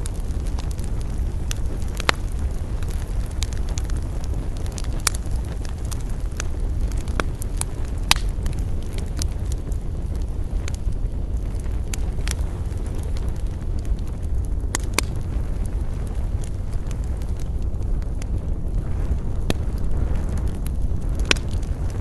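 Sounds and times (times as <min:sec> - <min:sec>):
campfire crackling and popping: 0:00.0 - 0:22.0
low rumble: 0:00.0 - 0:22.0.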